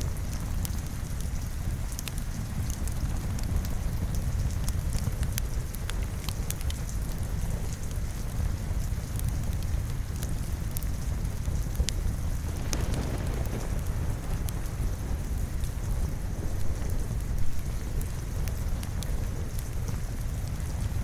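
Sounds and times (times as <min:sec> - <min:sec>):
steady rain: 0:00.0 - 0:21.0
wood fire crackling: 0:00.0 - 0:21.0
low rumble: 0:12.3 - 0:19.2.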